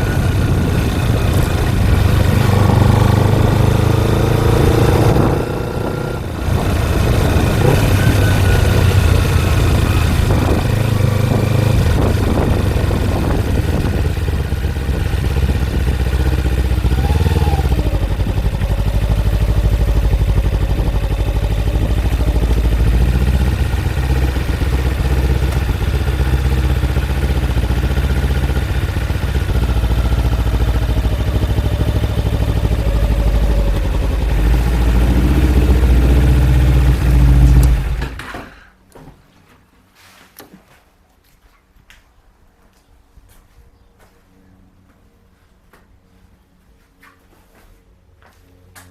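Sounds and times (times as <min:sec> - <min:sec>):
motorcycle engine running: 0:00.0 - 0:38.2.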